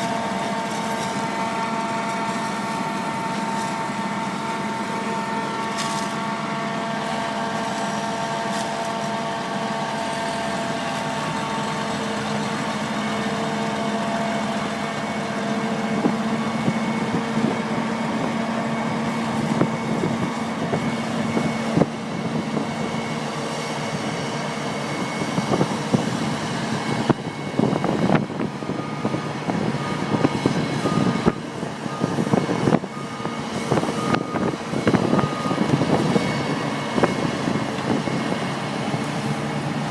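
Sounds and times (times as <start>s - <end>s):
tractor engine running: 0.0s - 39.9s
short beeps: 28.6s - 37.4s.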